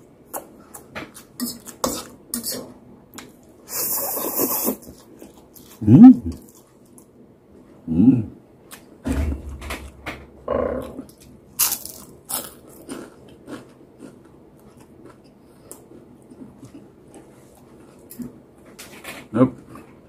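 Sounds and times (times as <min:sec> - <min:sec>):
person chewing food: 0:03.1 - 0:07.1, 0:10.8 - 0:18.7.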